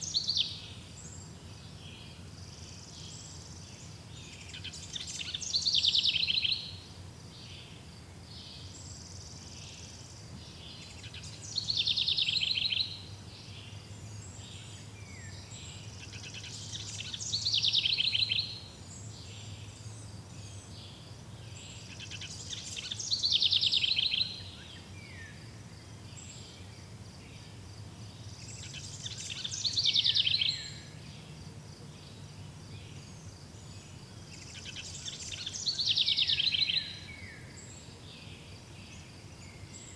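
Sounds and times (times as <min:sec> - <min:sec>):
songbird trilling: 0:04.4 - 0:06.8, 0:10.8 - 0:13.0, 0:14.6 - 0:18.7, 0:21.7 - 0:24.7, 0:28.4 - 0:31.0, 0:34.3 - 0:37.4.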